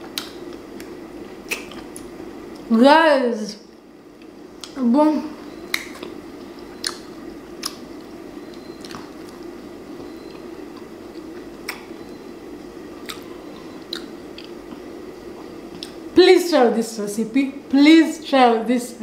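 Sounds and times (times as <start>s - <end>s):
steady low hum: 0.0s - 19.0s
wet mouth smacks: 0.1s - 2.1s, 6.8s - 7.8s, 13.9s - 14.8s
person chewing: 5.7s - 9.5s, 13.0s - 16.0s.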